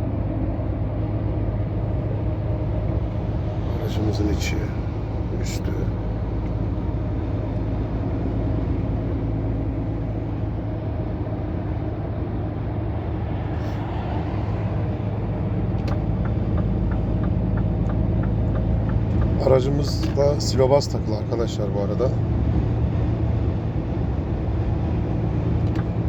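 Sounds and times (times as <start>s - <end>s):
diesel truck engine drone: 0.0s - 26.0s
light ticking: 15.5s - 21.0s.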